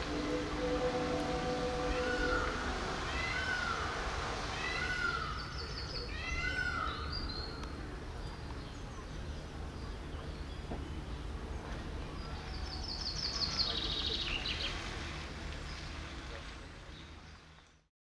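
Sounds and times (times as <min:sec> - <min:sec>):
steady low rumble: 0:00.0 - 0:06.1
birds calling: 0:00.0 - 0:07.3.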